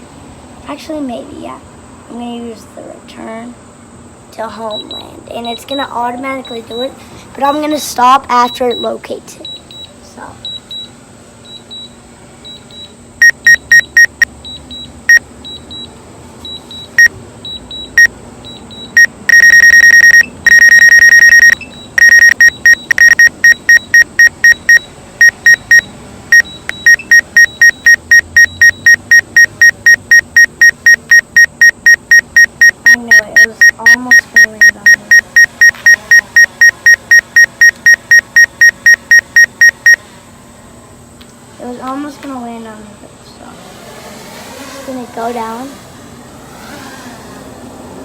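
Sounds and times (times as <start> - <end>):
remote controller beeping: 12.5 - 14.8, 17.5 - 40.0.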